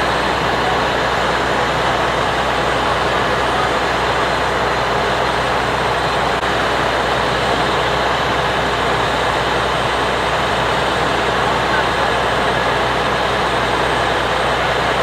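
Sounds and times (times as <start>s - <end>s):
heavy engine hiss and hum: 0.0s - 15.0s.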